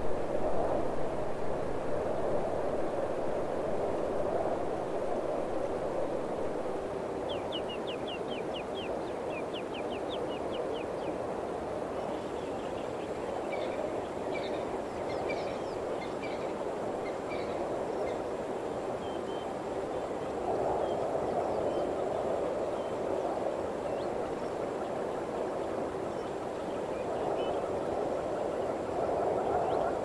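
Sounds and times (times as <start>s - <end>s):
birds singing: 7.3s - 11.2s.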